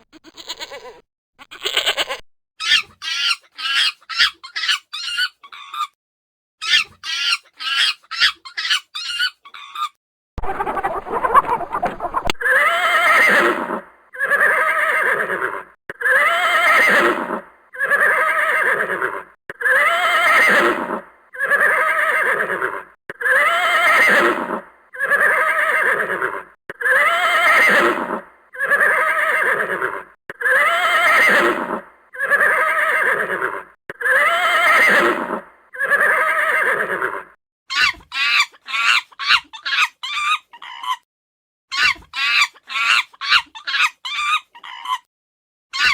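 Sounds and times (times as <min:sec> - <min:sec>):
chicken clucking: 0:10.4 - 0:13.8
horse whinnying: 0:10.4 - 0:37.4.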